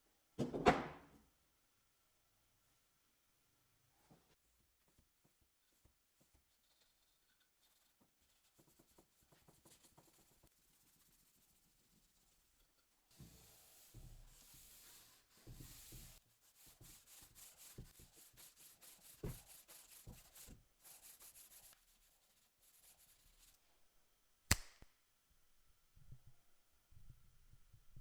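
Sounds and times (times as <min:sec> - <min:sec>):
sharp click: 0:24.5 - 0:24.9.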